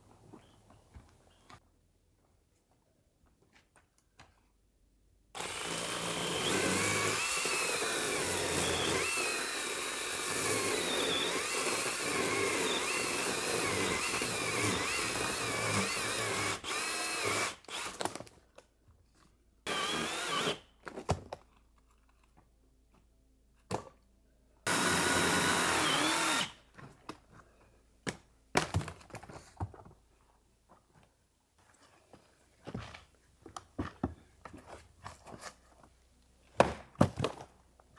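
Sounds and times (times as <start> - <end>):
chainsaw cutting wood: 5.4 - 18.2, 19.7 - 20.6, 24.7 - 26.6.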